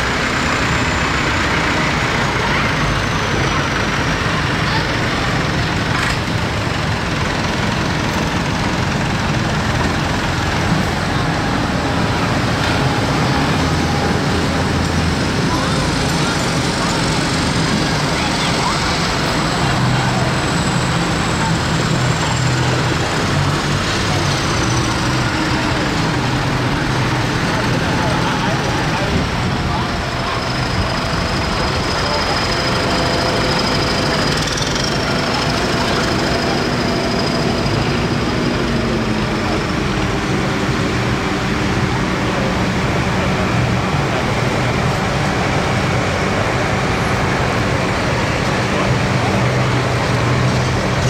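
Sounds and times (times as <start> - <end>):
tractor engines running: 0.0 - 51.0.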